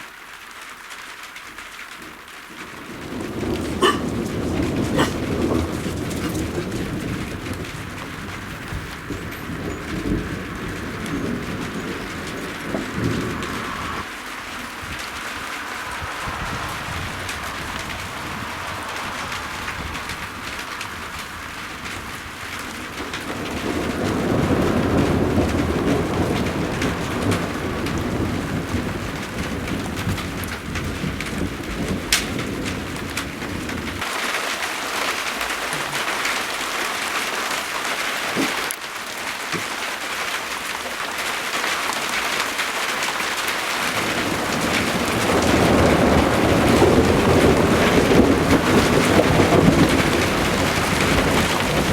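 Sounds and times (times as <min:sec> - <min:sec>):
steady rain: 0:00.0 - 0:51.9
rolling thunder: 0:02.5 - 0:34.1, 0:43.7 - 0:51.9.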